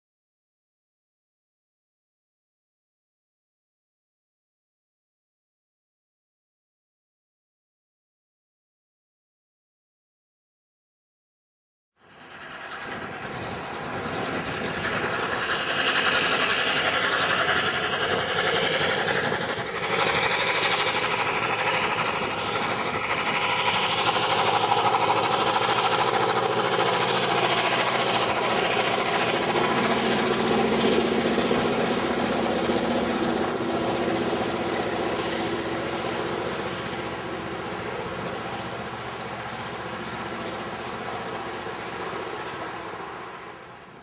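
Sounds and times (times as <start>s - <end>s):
freight train rumbling past: 12.0s - 44.0s.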